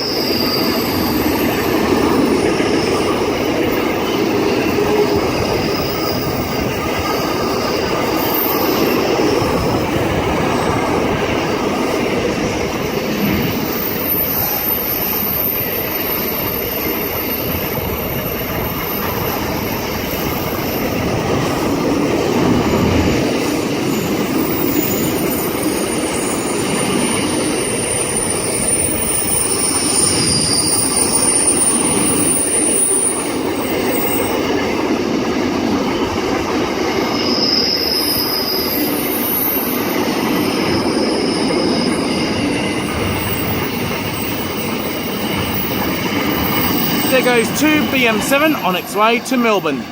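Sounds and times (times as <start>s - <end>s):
high-pitched wheel squeal: 0.0s - 2.4s
train wheels rumbling on rail: 0.0s - 49.9s.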